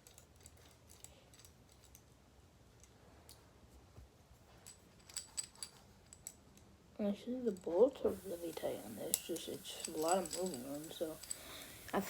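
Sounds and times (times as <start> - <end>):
light metal clicks: 7.5 - 12.0.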